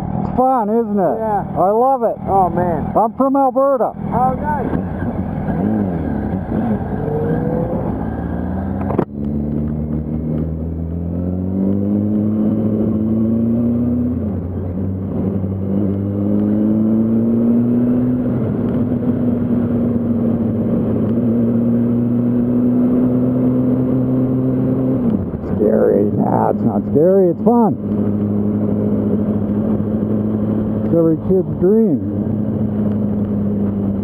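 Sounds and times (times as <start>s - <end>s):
motorcycle engine accelerating: 0.0s - 34.0s.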